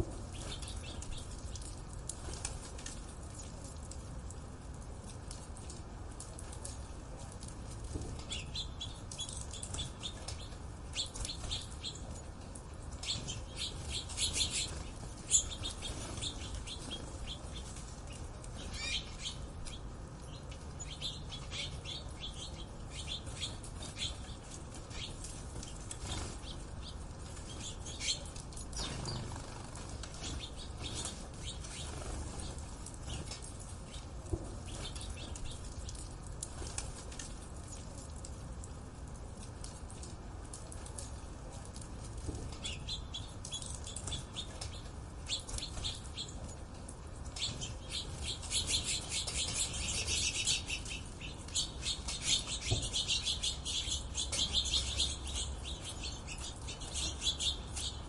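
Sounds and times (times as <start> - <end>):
birds chirping: 0.2 - 1.9, 8.2 - 12.2, 12.9 - 36.1, 42.6 - 46.5, 47.2 - 58.0.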